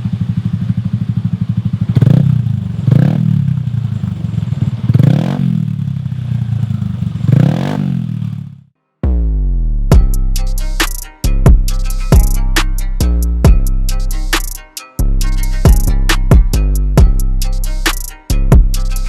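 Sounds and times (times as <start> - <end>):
scooter engine idling and revving: 0.0 - 8.8, 9.9 - 19.0
music: 8.8 - 19.0.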